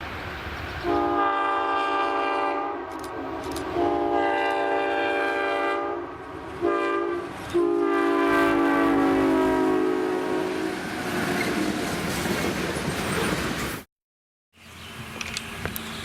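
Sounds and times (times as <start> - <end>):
locomotive air horn blasts: 0.8 - 11.0.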